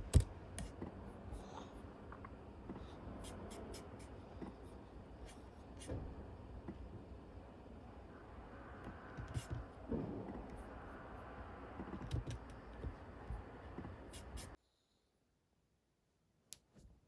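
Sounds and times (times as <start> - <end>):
indoor room noise: 0.0 - 15.1.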